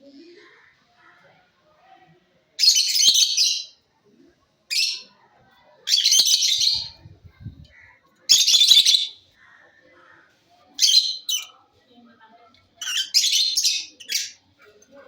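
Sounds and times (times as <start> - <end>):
lovebirds chattering shrilly: 5.9 - 7.0, 7.7 - 9.2, 10.8 - 11.5, 12.8 - 14.4.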